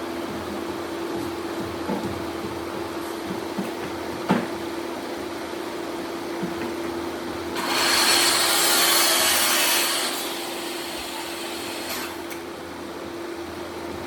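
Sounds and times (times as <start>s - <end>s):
tool working wood: 7.6s - 12.2s.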